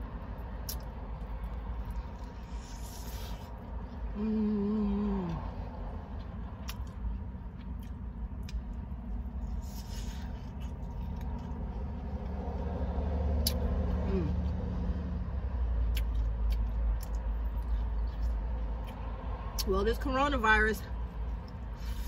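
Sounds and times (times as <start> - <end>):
low steady rumble: 0.0 - 22.0
chewing with mouth clicks: 0.4 - 4.2, 6.0 - 12.7, 15.8 - 19.7
person humming: 4.1 - 5.5.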